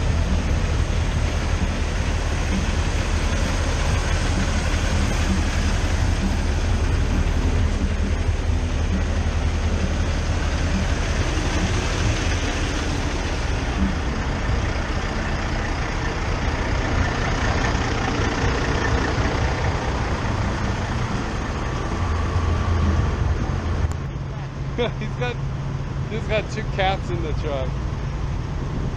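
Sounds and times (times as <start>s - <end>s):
truck engine idling: 0.0s - 28.9s.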